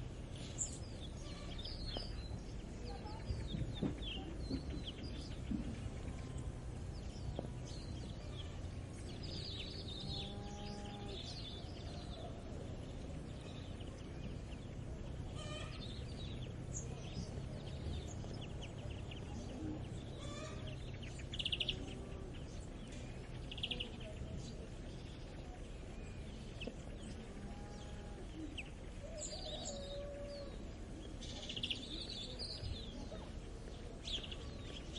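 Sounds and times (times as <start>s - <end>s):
low background rumble: 0.0s - 34.9s
small birds chirping: 0.0s - 34.9s
drawn-out animal call: 19.9s - 22.5s.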